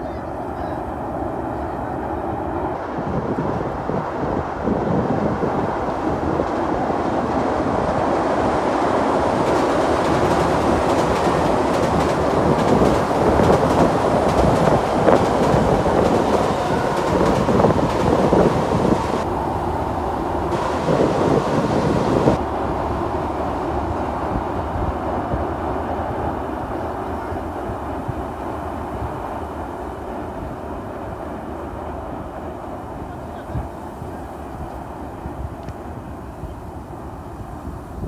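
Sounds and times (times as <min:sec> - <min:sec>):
train rumbling over bridge: 0:00.0 - 0:38.0
wheels clacking over rail joints: 0:05.7 - 0:19.3.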